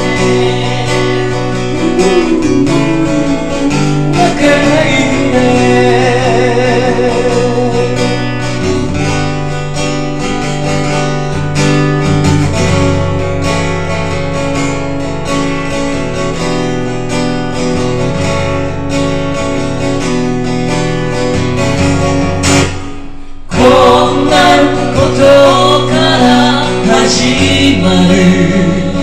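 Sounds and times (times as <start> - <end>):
acoustic guitar strumming chords: 0.0 - 29.0.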